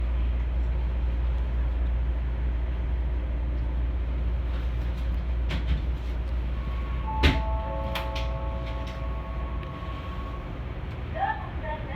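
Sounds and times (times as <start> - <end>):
electric train humming: 6.1 - 11.9.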